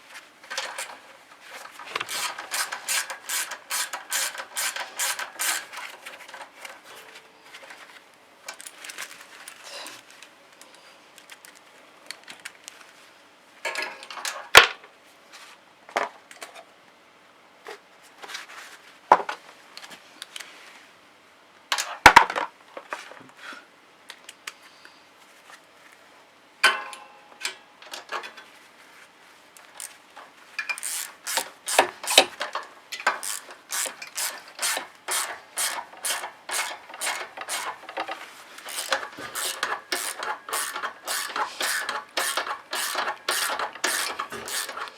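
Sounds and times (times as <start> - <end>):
rapid clicks of screws worked in: 1.8 - 6.0, 29.6 - 30.0, 30.6 - 44.9
tools and metal parts knocking: 30.6 - 44.9.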